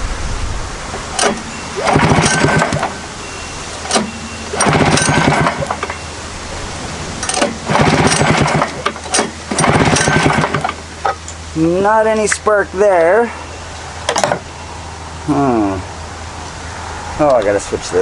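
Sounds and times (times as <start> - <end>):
snowmobile engine cranking: 1.1 - 3.0, 3.8 - 6.0, 7.2 - 10.8
pull starter clicks: 1.2 - 2.9, 3.8 - 5.9, 7.2 - 10.8.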